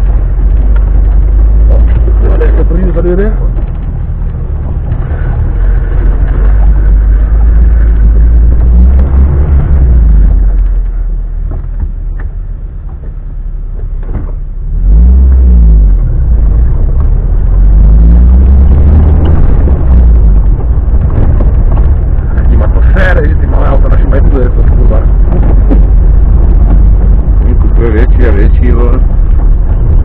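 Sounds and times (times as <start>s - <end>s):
off-road car engine rumbling: 0.0s - 30.0s.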